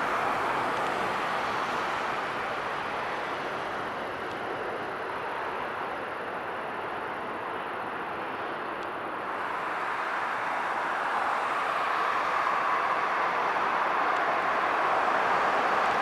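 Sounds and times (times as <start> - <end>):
jet engine roar: 9.1 - 16.0.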